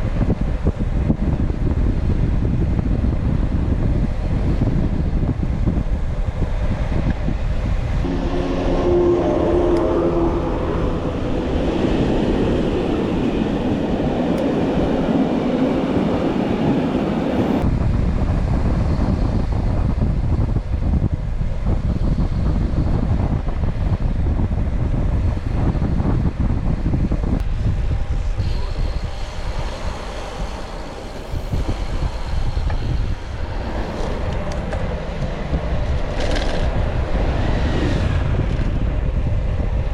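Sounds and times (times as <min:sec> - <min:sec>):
wind rushing over microphone: 0:00.0 - 0:39.9
short horn-like tone: 0:08.0 - 0:13.4
vehicle passing: 0:08.0 - 0:14.1
bike road rumble: 0:17.3 - 0:39.9.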